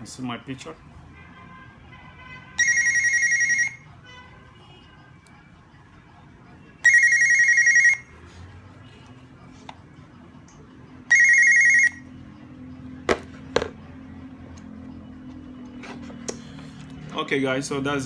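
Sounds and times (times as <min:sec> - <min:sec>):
warbling electronic ringtone: 0:02.6 - 0:03.9, 0:06.8 - 0:08.2, 0:11.1 - 0:12.3.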